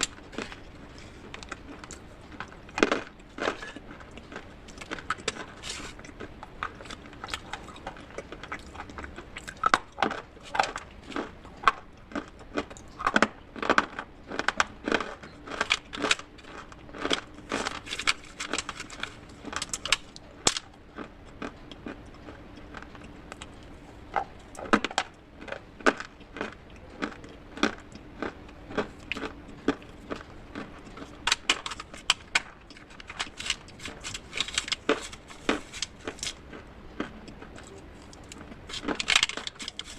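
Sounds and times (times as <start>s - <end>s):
clay and slate crunching: 0.0s - 21.1s, 22.7s - 39.9s.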